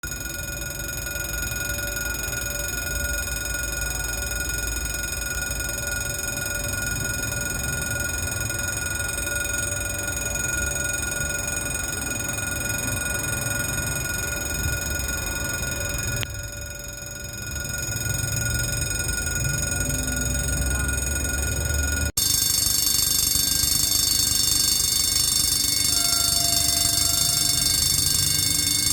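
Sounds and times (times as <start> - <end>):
electric crossing bell ringing: 0.0 - 28.9.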